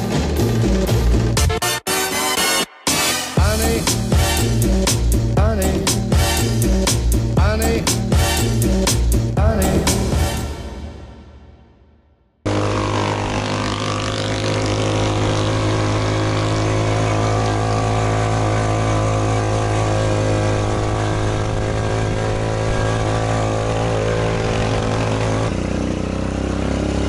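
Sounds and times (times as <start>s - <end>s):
vehicle engine running: 0.0s - 1.6s, 12.4s - 27.0s.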